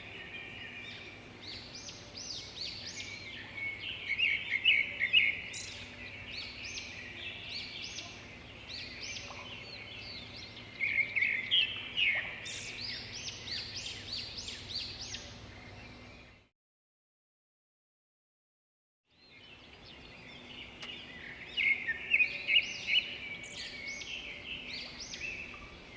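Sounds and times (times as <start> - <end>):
small birds chirping: 0.0 - 16.5, 19.1 - 25.9.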